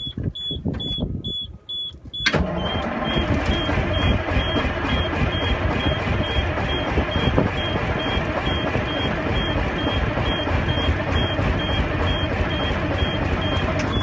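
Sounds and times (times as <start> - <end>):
dash warning buzzer beeping: 0.0 - 14.0
diesel engine cranking on starter: 2.2 - 14.0.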